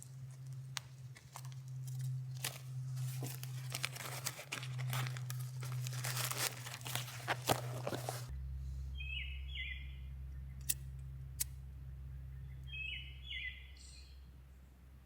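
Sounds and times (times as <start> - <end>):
crinkling handling noise: 0.0 - 8.3.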